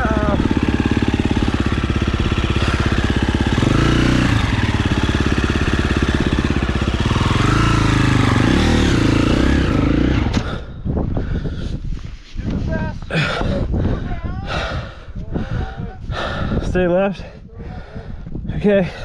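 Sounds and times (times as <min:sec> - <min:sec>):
dirt bike engine revving: 0:00.0 - 0:10.7.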